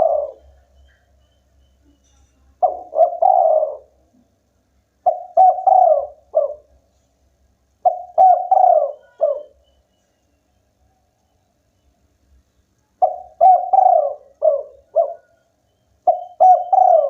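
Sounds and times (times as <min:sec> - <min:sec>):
dove cooing: 0:00.0 - 0:01.2, 0:02.6 - 0:04.0, 0:05.0 - 0:06.8, 0:07.8 - 0:09.6, 0:13.0 - 0:17.0.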